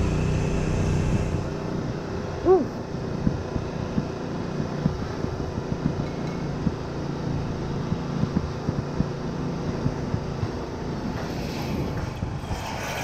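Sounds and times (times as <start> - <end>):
motorbike engine running: 0.0 - 13.0
short low thumps: 1.8 - 11.2.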